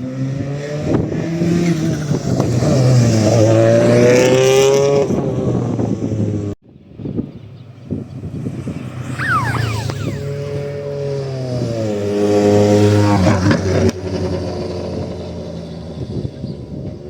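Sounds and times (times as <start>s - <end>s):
rally car engine at speed: 8.4s - 17.0s.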